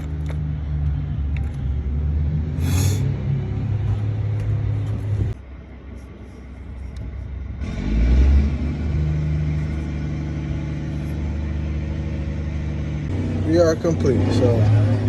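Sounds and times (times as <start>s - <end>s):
truck diesel engine starting and idling: 7.3s - 15.0s.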